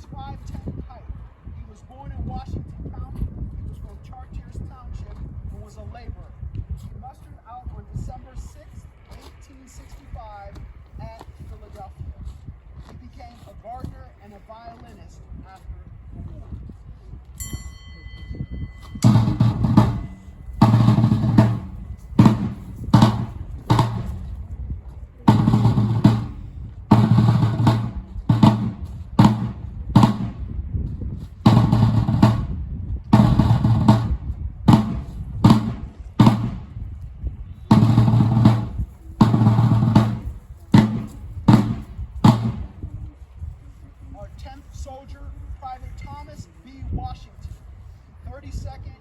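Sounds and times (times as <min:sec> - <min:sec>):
bass drum strokes: 0:18.5 - 0:24.5, 0:25.2 - 0:43.0
snare drum: 0:19.0 - 0:24.3, 0:25.3 - 0:30.5, 0:31.4 - 0:32.6, 0:33.2 - 0:36.7, 0:37.7 - 0:42.8.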